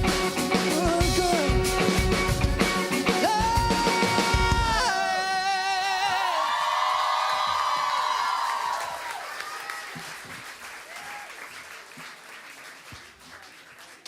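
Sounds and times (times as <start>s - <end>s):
band instruments: 0.0s - 5.4s
drums: 0.0s - 6.4s
audience clapping and cheering: 4.3s - 14.0s.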